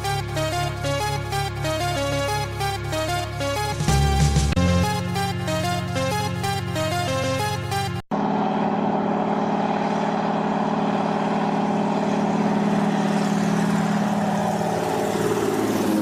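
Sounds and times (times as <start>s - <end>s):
electronic music: 0.0s - 16.0s
engine drone with hiss: 8.1s - 16.0s.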